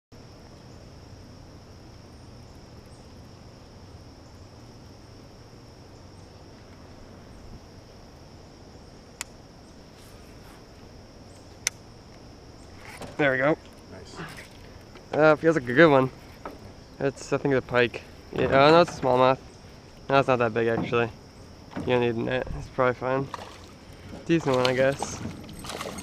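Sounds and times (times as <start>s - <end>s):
faint low hum: 0.1s - 26.0s
insects chirring: 0.1s - 26.0s.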